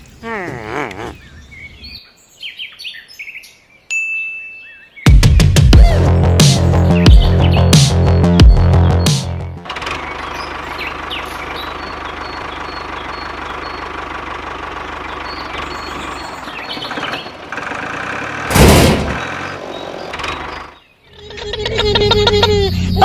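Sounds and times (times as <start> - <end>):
diesel water pump engine running: 9.6 - 20.8.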